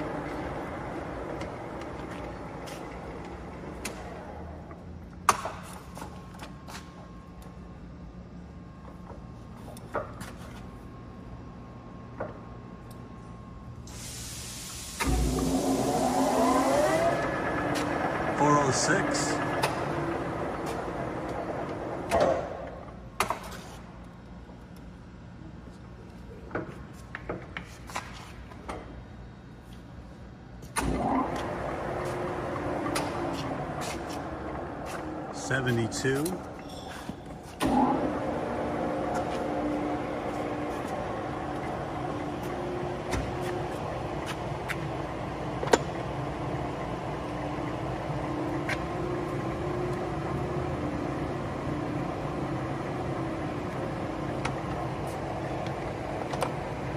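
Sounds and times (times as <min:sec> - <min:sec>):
lathe spindle and gears running: 0:00.0 - 0:07.6, 0:15.0 - 0:23.0, 0:30.8 - 0:56.9
lathe running: 0:15.0 - 0:22.0.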